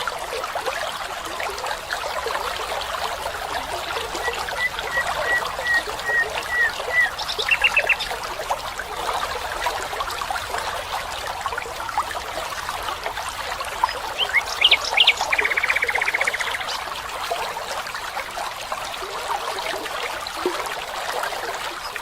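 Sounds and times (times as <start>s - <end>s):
stream trickling: 0.0s - 22.0s
songbirds whistling and trilling: 4.2s - 8.1s, 14.1s - 16.8s.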